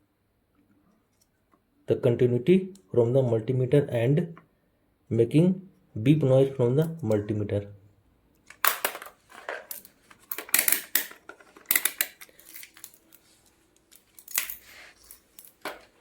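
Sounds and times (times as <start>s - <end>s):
small tools clicking and scraping: 8.5s - 16.0s.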